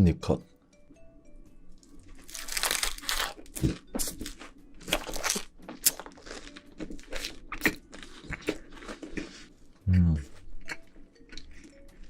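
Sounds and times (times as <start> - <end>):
chewing pizza crust crunches: 2.2 - 9.5.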